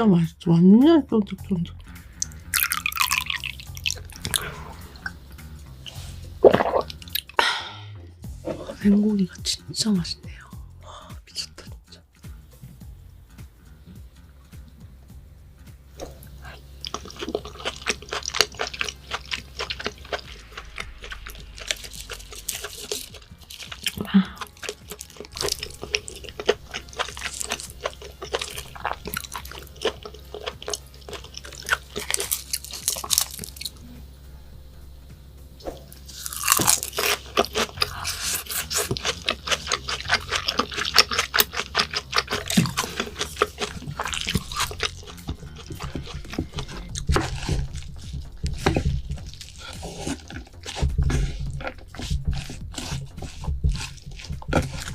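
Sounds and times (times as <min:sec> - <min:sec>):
wet chewing and lip smacks: 0:02.2 - 0:05.2, 0:06.4 - 0:07.5, 0:16.0 - 0:33.8, 0:36.0 - 0:54.9.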